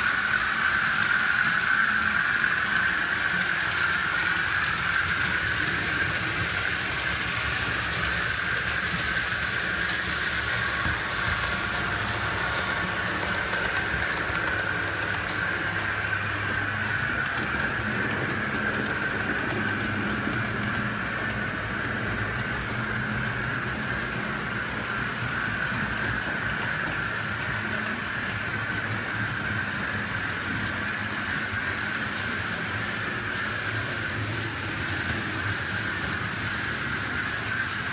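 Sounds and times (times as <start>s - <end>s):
model train running on track: 0.0s - 37.9s.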